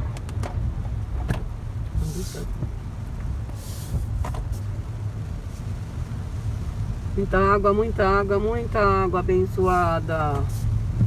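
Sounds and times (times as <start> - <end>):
heavy rain: 0.0 - 11.0
wind buffeting microphone: 9.9 - 11.0.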